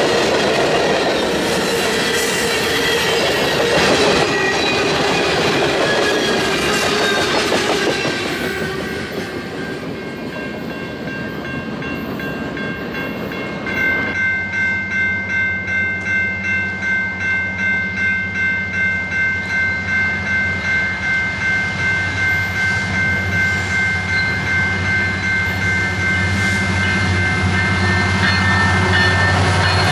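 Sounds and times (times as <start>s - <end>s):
train wheels rolling past: 0.0s - 14.2s
pulsing high ringing: 0.0s - 29.9s.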